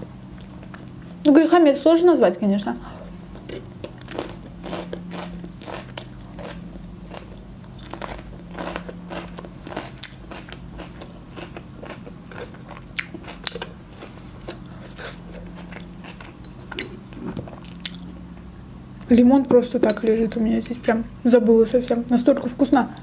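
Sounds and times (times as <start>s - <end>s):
person chewing and crunching: 0.0s - 1.3s, 2.8s - 18.2s.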